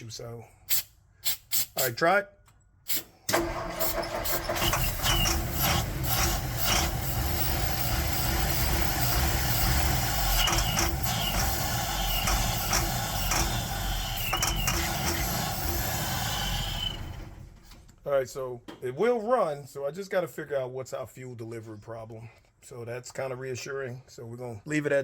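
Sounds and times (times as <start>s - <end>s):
engine rumbling with clatter: 3.3s - 18.8s.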